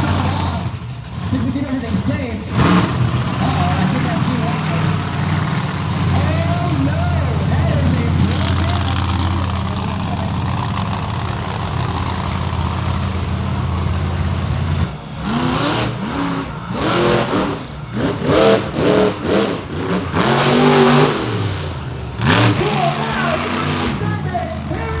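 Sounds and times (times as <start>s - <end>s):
monster truck engine revving: 0.0s - 25.0s.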